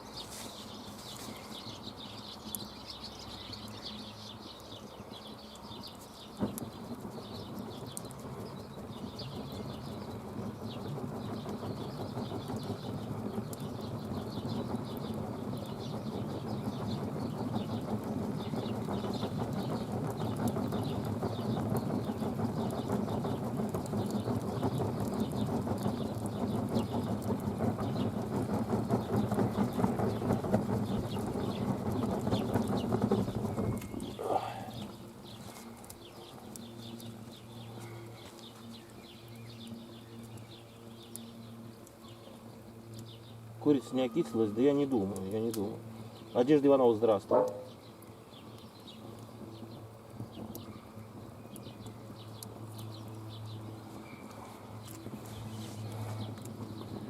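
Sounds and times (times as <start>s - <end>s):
campfire crackling and popping: 0.0s - 57.0s
fire sharp snap: 5.5s - 10.1s.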